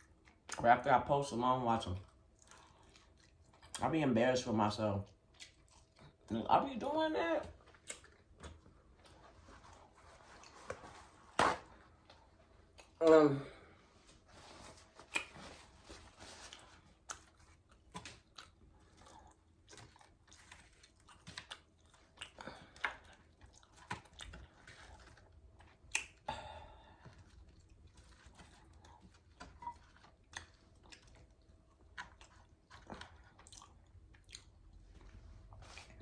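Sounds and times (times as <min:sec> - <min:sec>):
person chewing fried chicken: 0:00.0 - 0:00.6, 0:02.0 - 0:04.0, 0:05.0 - 0:06.3, 0:07.6 - 0:11.2, 0:14.3 - 0:36.0.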